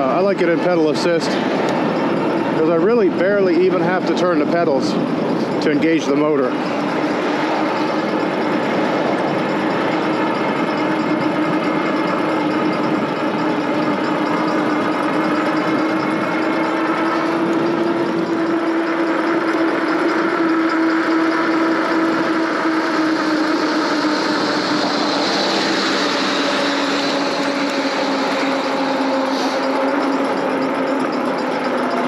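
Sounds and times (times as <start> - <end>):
electric motor whine: 0.0 - 32.0
wind rush: 4.2 - 15.0.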